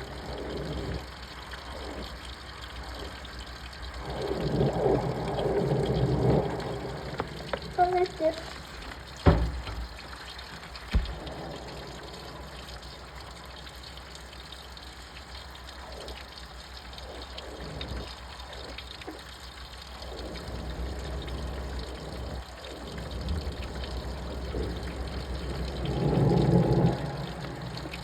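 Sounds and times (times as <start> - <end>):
water sloshing in washing machine: 4.3 - 11.8
knock: 9.2 - 9.9, 10.9 - 11.2.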